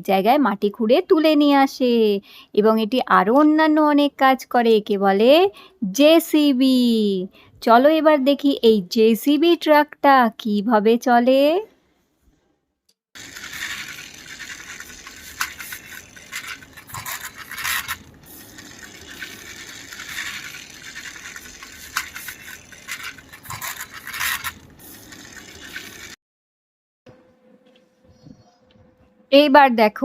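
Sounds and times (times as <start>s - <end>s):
toy excavator wheels scraping: 13.2s - 26.2s
toy parts clattering and clicking: 13.2s - 26.2s.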